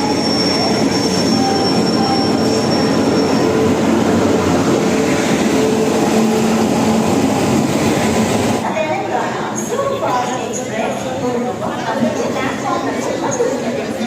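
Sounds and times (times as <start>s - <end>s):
train wheels rumbling on rails: 0.0s - 8.8s.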